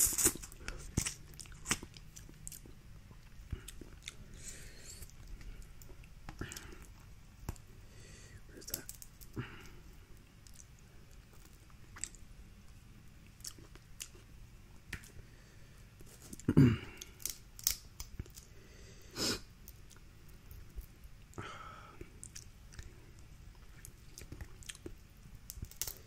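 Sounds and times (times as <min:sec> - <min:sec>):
shells cracking while eating: 0:00.0 - 0:02.8, 0:08.6 - 0:09.4, 0:16.2 - 0:18.5, 0:23.8 - 0:26.0.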